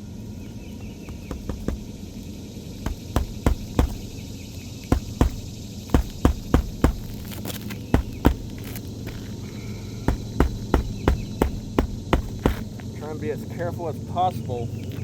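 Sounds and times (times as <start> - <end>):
steady low hum: 0.0 - 15.0
taps and knocks on roof shingles: 0.5 - 2.1, 2.8 - 12.9.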